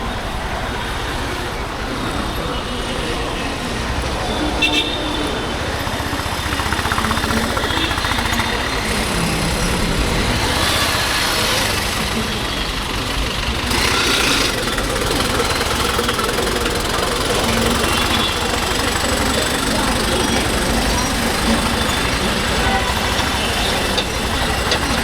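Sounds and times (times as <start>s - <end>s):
motorcycle engine running: 5.4s - 25.0s.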